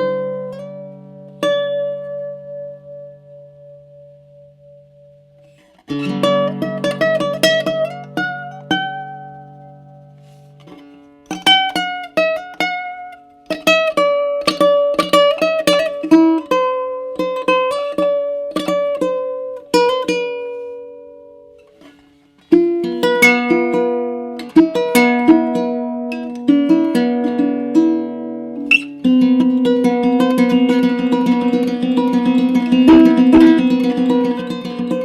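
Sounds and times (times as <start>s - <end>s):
ukulele plucked notes: 0.0s - 35.0s
ukulele chord notes: 22.5s - 35.0s.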